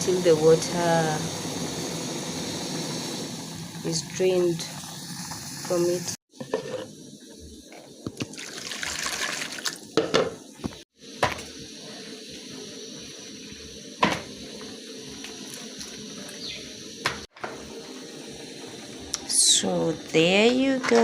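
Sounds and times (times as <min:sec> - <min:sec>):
pots and utensils knocking: 0:10.0 - 0:10.4.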